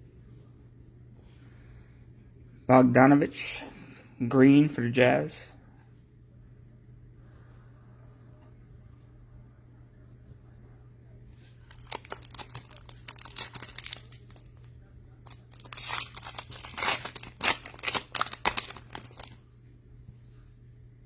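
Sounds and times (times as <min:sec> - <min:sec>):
plastic wrapper crinkling: 0:11.6 - 0:19.4.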